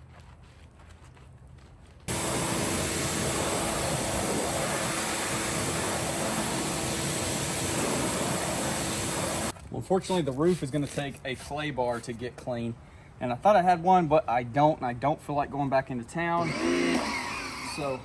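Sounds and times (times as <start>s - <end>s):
machine hissing and humming: 2.1s - 9.5s, 16.4s - 18.0s.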